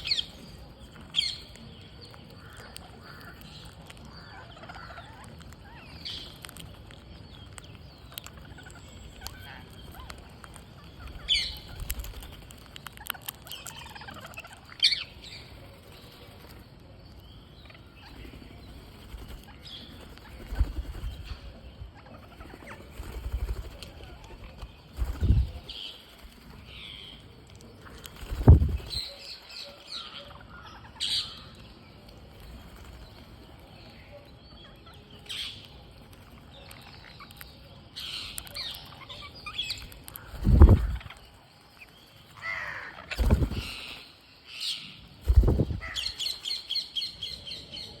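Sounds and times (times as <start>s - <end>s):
parrots chirping and squawking: 2.4s - 6.6s, 45.8s - 46.2s.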